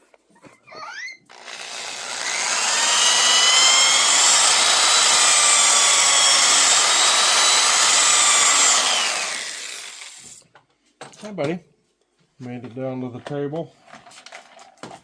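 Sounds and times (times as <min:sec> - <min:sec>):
table saw whining: 0:00.7 - 0:10.4.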